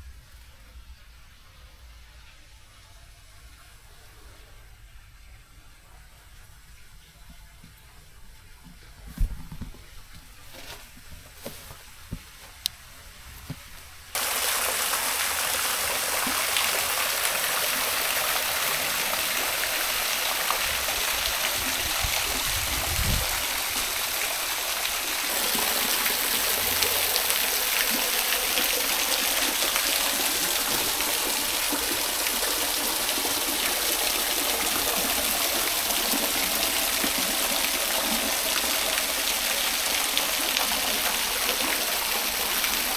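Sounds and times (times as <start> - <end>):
small waterfall rushing: 14.2 - 42.9.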